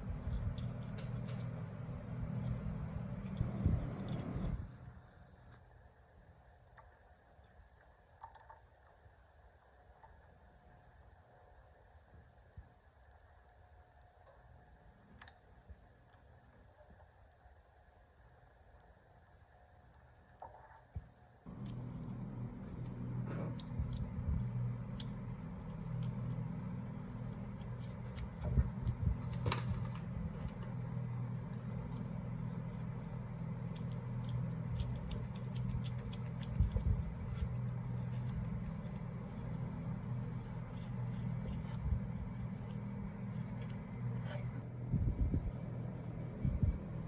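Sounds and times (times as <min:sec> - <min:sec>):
machine humming: 0:00.0 - 0:05.0, 0:21.5 - 0:47.0.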